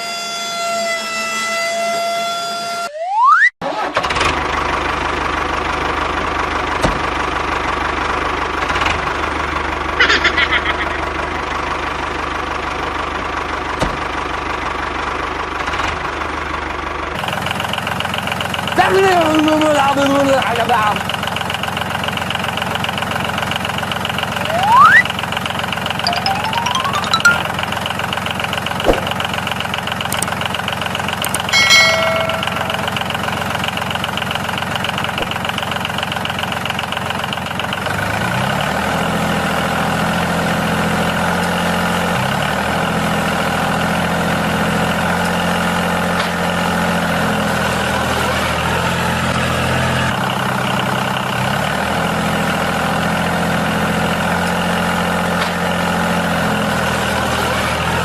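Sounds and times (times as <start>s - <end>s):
bell-like ding: 26.1s - 27.7s, 31.3s - 33.4s.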